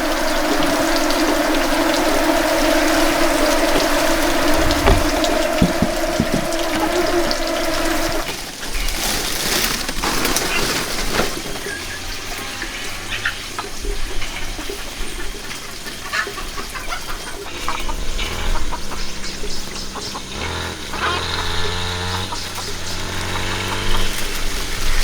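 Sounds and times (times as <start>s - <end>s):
chickens clucking: 0.0s - 8.4s, 10.1s - 25.0s
noisy background: 0.0s - 8.5s.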